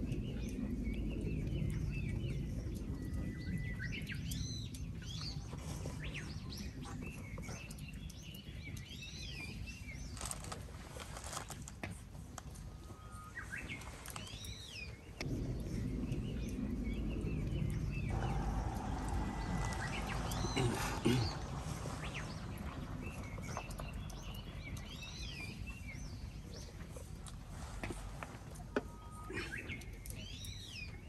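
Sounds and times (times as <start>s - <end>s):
low rumbling noise: 0.0s - 31.0s.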